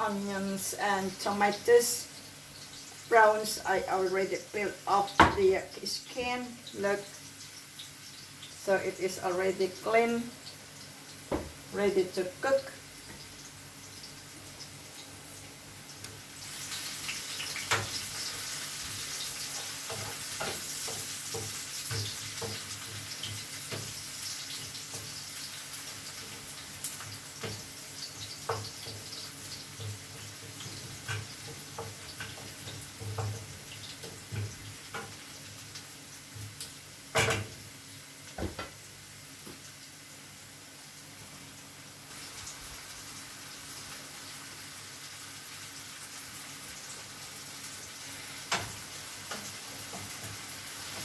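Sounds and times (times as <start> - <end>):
vegetables sizzling in a pan: 0.0 - 51.0
stirring clicks and knocks: 28.4 - 35.2.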